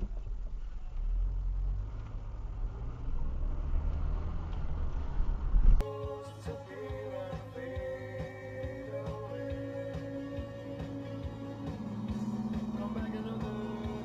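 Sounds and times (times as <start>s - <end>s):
car driving interior rumble: 0.0s - 5.8s, 9.3s - 14.0s
music: 5.8s - 14.0s.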